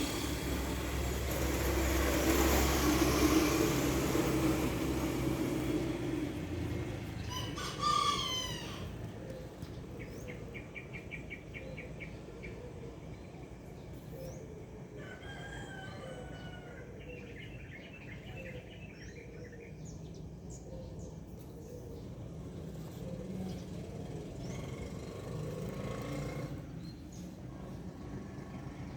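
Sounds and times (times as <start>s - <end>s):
small birds chirping: 3.7s - 28.9s
rooster crowing: 7.2s - 9.0s, 15.0s - 17.0s.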